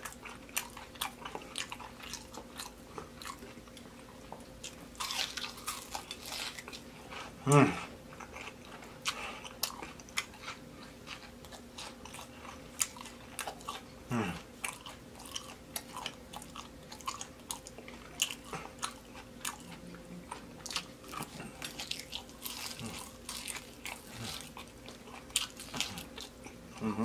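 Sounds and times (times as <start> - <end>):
crunchy chewing and biting: 0.0 - 27.0.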